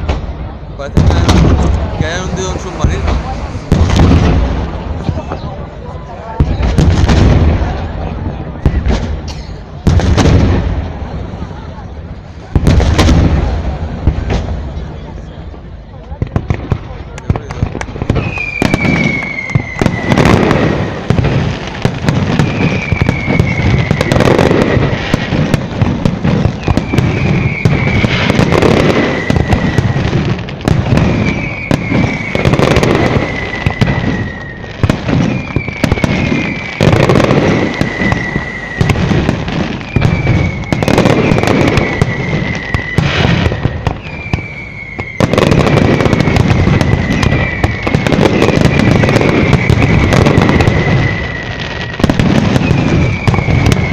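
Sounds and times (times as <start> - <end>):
fireworks crackling and banging: 0.0 - 53.9
falling firework whistle: 17.7 - 53.9.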